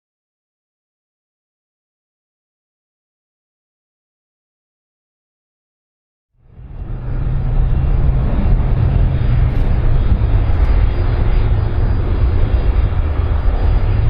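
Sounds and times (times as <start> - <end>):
airplane engines rumbling: 6.4 - 14.0.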